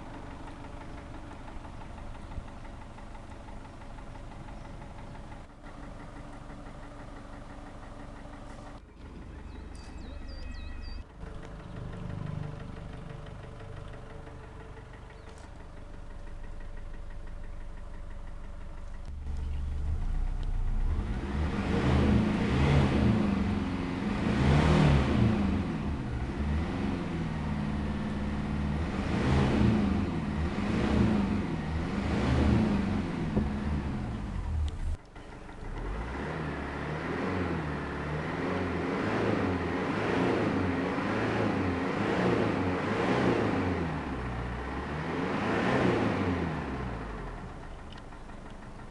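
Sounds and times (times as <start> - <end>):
diesel engine revving: 0.0 - 48.9.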